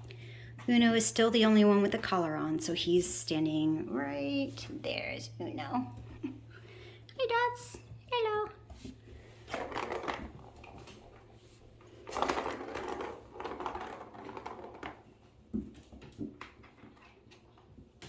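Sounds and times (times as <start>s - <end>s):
plastic toy clattering and rattling: 9.4s - 17.8s.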